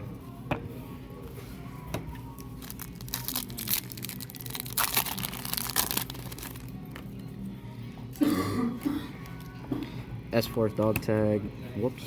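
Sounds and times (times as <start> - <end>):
foil wrapper crinkling and tearing: 2.4 - 6.8.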